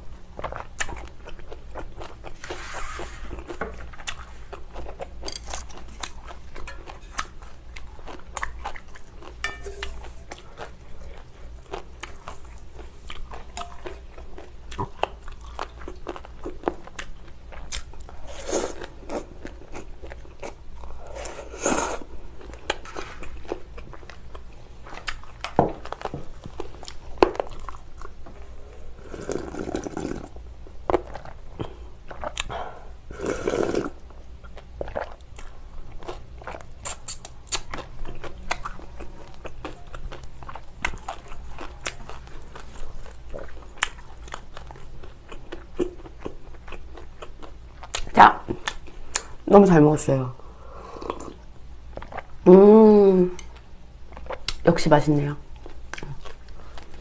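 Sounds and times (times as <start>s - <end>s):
slurping broth: 2.4s - 3.5s, 29.0s - 30.3s, 33.1s - 34.0s
crunchy chewing: 33.3s - 49.3s.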